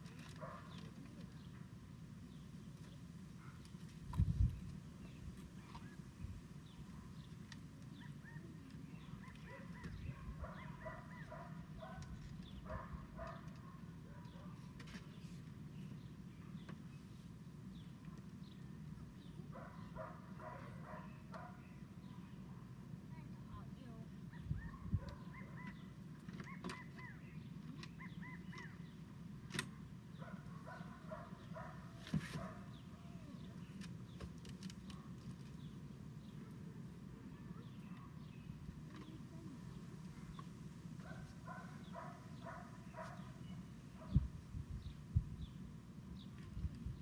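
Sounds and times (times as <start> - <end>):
bird chirping: 2.3 - 22.5, 23.8 - 29.2, 37.2 - 47.0
low steady rumble: 35.6 - 47.0.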